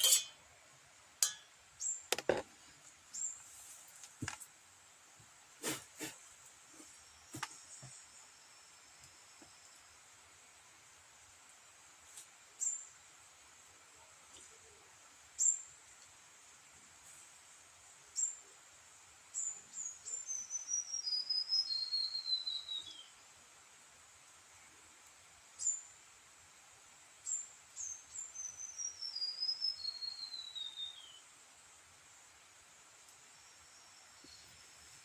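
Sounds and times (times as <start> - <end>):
songbird singing: 1.2 - 3.5, 14.0 - 16.1, 19.3 - 23.3, 25.5 - 25.9, 27.2 - 31.4, 33.0 - 35.0.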